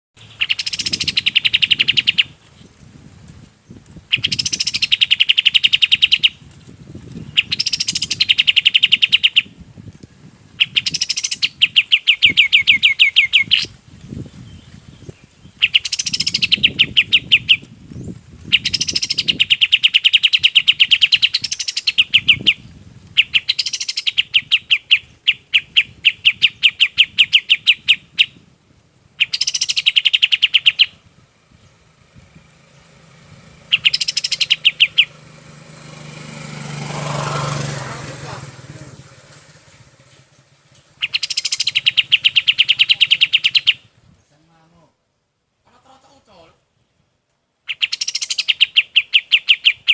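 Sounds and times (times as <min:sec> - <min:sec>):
songbird singing trills: 0:00.2 - 0:45.4, 0:46.1 - 0:49.9.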